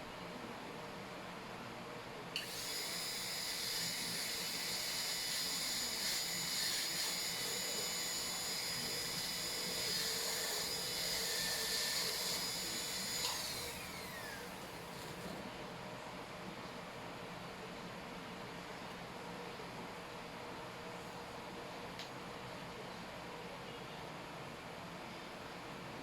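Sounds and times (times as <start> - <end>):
dental drill whine: 2.4 - 15.3.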